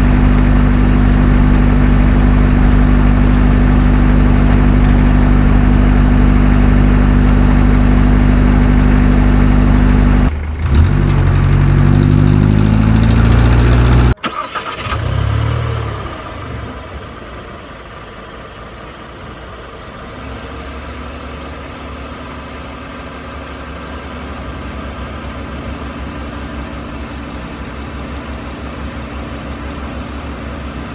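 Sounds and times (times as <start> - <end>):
engine revving: 0.0 - 17.2
engine idling: 0.0 - 30.9.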